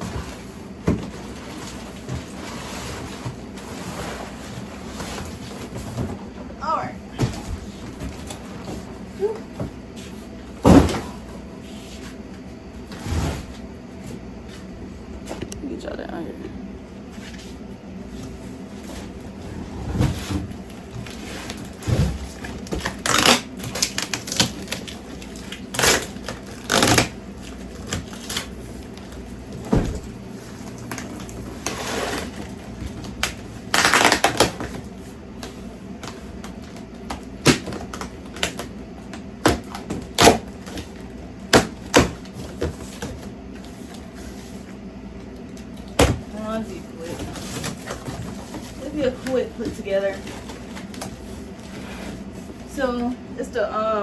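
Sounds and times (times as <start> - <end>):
cardboard scraping rustles: 0.0 - 14.7, 17.1 - 33.0, 46.3 - 53.0.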